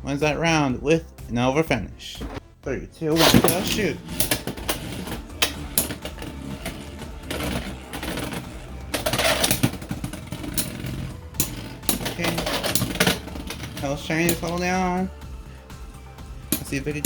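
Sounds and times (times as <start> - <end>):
spinning tops clacking together: 3.2 - 14.9, 15.5 - 17.0
spinning tops whirring: 3.2 - 17.0.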